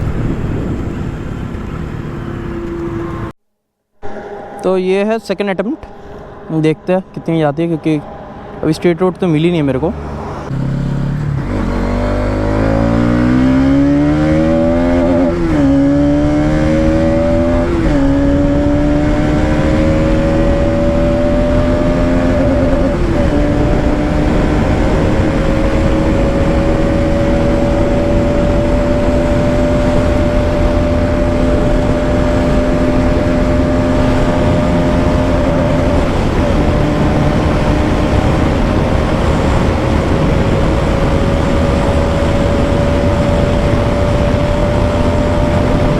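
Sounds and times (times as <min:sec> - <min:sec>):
rushing wind noise: 0:00.0 - 0:03.3, 0:04.0 - 0:45.9
motorcycle engine accelerating hard: 0:09.9 - 0:45.9.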